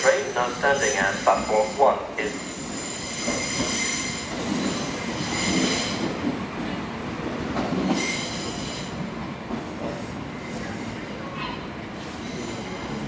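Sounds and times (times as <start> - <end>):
moving train rumble: 0.0 - 13.0
train wheels squealing: 0.1 - 6.1, 7.8 - 9.0, 12.0 - 13.0.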